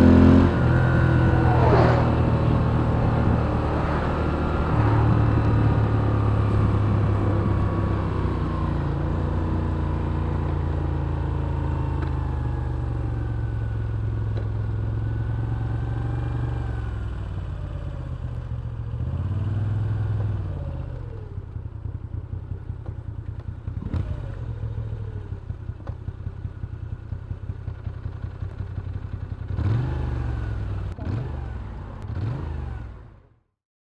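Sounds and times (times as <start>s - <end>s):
v-twin motorcycle engine idling: 20.8s - 23.8s, 24.5s - 29.5s.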